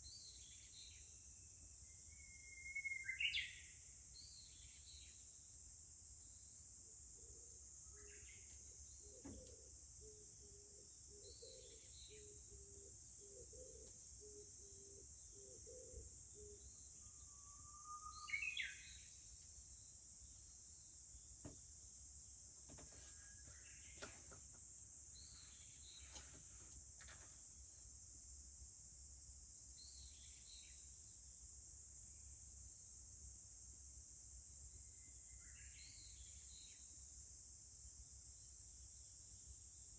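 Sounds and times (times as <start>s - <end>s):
high insect drone: 0.2s - 39.9s.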